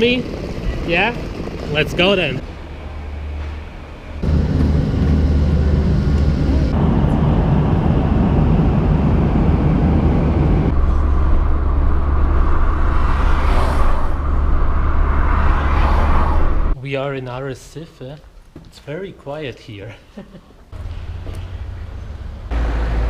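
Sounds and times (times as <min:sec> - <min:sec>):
road noise: 0:00.0 - 0:16.8, 0:20.8 - 0:23.0
vehicle engine drone: 0:00.0 - 0:16.8, 0:20.8 - 0:23.0.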